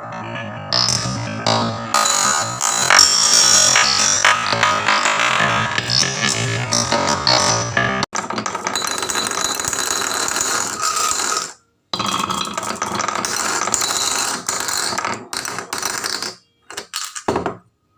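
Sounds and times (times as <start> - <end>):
toys clattering down wooden track: 8.2 - 17.5.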